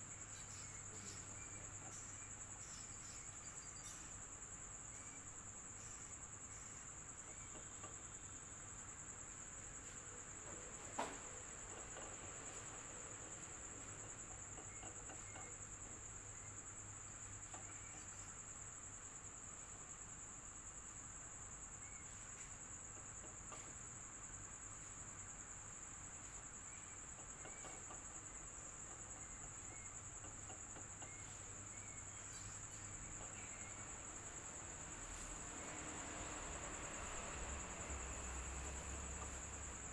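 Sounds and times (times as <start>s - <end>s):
insect trill: 0.0s - 39.9s
electric fan noise: 30.6s - 39.9s.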